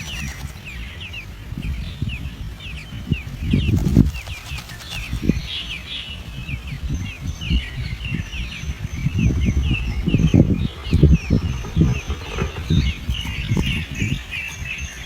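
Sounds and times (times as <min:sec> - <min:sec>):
birds chirping: 0:00.0 - 0:15.0
low rumbling noise: 0:05.4 - 0:14.8.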